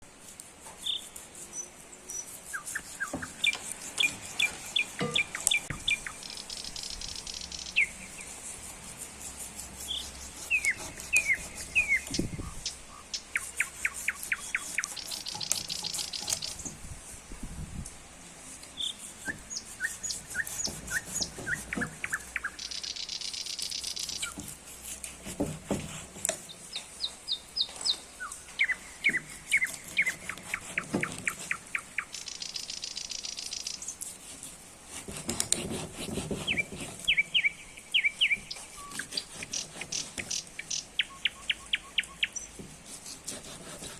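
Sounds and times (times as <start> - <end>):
songbirds chirping: 0.0 - 24.7, 25.4 - 34.4, 36.2 - 42.8
buzzy high bird trill: 0.8 - 9.0, 9.8 - 16.6, 18.8 - 24.5, 26.7 - 34.1, 36.5 - 42.5.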